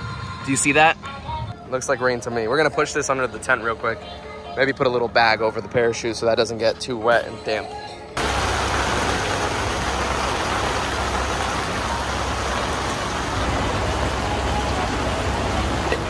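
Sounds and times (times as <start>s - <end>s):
heavy rain: 8.2s - 16.0s
low steady rumble: 8.2s - 16.0s.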